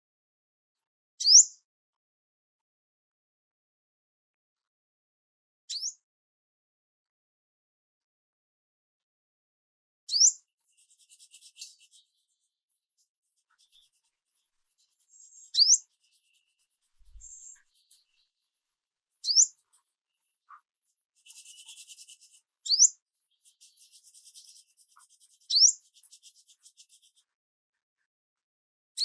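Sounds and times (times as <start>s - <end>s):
bird upslurred whistle: 15.3s - 15.8s, 19.2s - 19.5s, 22.7s - 22.9s.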